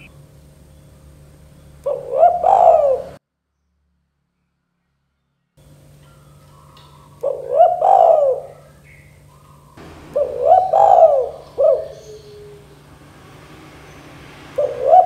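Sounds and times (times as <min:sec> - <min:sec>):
dove cooing: 0:01.8 - 0:03.2, 0:06.2 - 0:12.9, 0:14.5 - 0:15.0.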